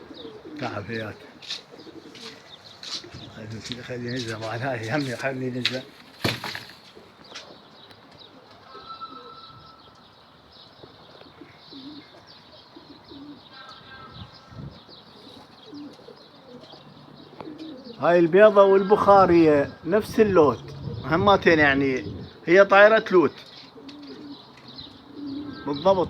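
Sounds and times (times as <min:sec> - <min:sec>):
pigeons cooing softly: 0:00.0 - 0:26.0
faint bird chirps: 0:06.3 - 0:18.1, 0:23.3 - 0:26.0.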